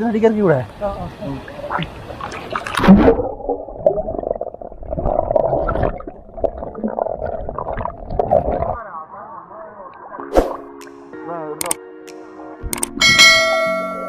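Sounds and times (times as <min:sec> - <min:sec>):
muffled underwater churning rush: 0:00.7 - 0:08.9.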